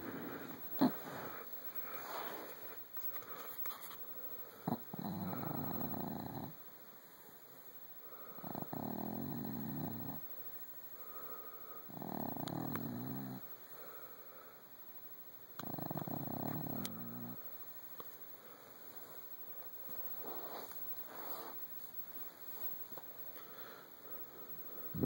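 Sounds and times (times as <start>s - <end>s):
dog snoring: 0.0s - 2.5s, 4.6s - 6.6s, 8.3s - 10.2s, 11.9s - 13.5s, 15.6s - 17.4s.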